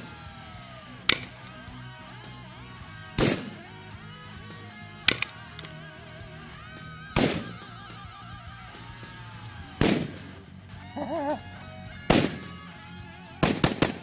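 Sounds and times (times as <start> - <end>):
rifle shots: 3.2 - 3.6, 7.2 - 7.5, 9.8 - 10.3, 12.1 - 12.6, 13.4 - 14.0.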